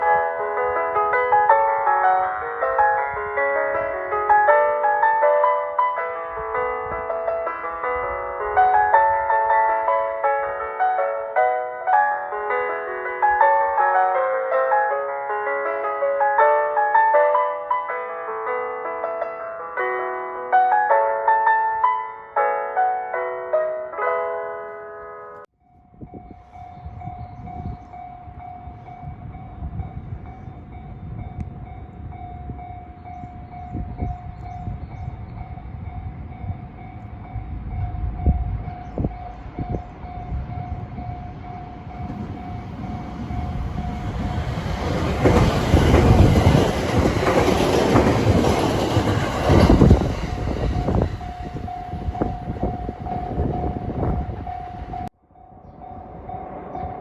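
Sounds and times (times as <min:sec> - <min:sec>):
level crossing warning bell: 0:24.0 - 0:57.0
train wheels clattering over rails: 0:42.0 - 0:51.6.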